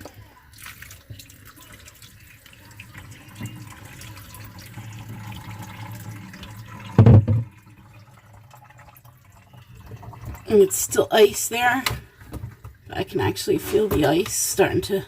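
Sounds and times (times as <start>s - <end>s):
water pouring and trickling: 0.0s - 15.0s
short loud thump: 7.0s - 7.5s.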